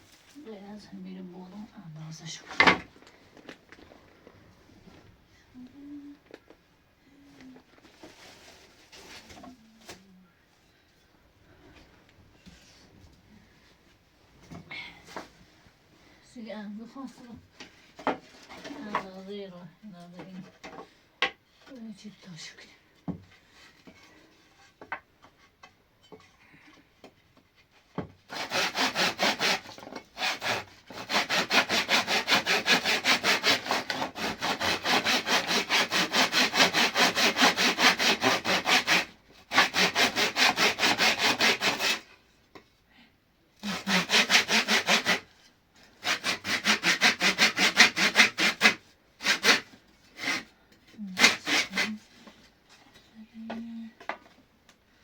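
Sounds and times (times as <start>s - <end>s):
hand saw sawing: 28.3s - 42.2s, 43.6s - 52.3s.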